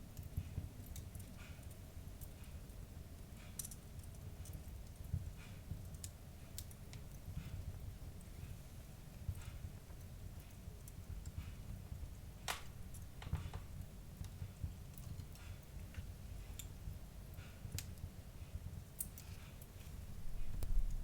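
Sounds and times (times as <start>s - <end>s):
wood fire crackling: 0.0s - 21.0s
low steady rumble: 20.0s - 21.0s.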